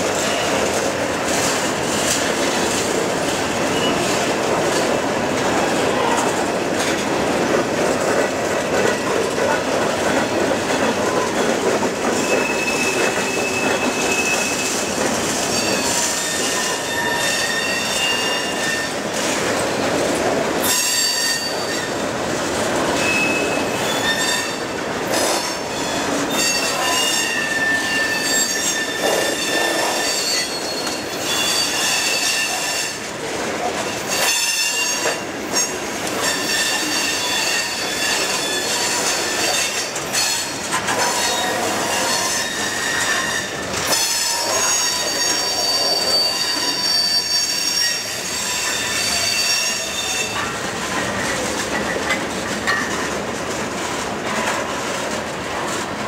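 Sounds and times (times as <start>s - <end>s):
train wheels rumbling on rails: 0.0s - 56.0s
train wheels squealing: 3.6s - 4.3s, 12.0s - 19.9s, 20.6s - 22.0s, 23.0s - 33.0s, 34.0s - 50.5s.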